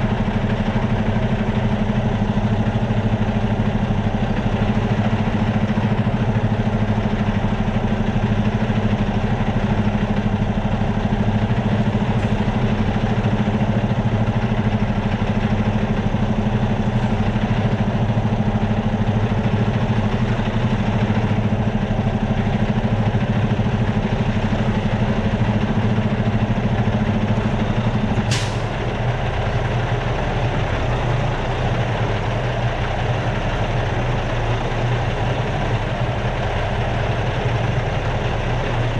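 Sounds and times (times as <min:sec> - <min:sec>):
truck diesel engine idling: 0:00.0 - 0:38.9
short sharp sound: 0:28.3 - 0:28.8.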